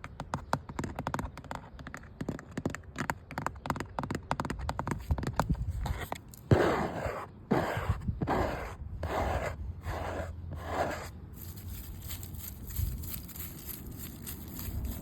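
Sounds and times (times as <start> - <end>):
faint outdoor background: 0.0 - 15.0
rasping scratches on hard surface: 5.8 - 15.0.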